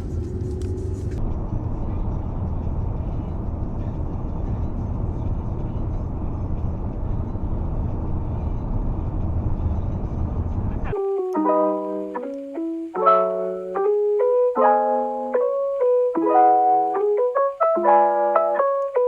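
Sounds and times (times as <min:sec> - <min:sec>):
car driving on road: 0:00.0 - 0:10.9.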